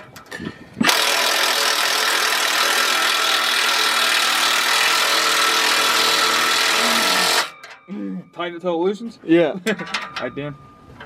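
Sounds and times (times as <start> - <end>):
machine motor running: 0.8 - 7.5.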